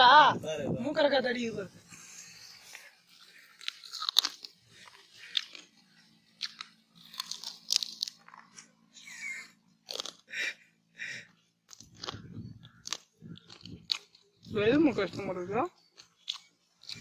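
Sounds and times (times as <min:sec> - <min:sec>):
crunchy bites and chewing: 0:02.6 - 0:10.6, 0:11.2 - 0:17.0.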